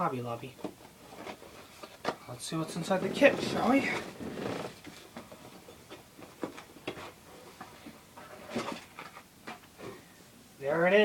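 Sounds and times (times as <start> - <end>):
cardboard box rustling: 0.9 - 7.2.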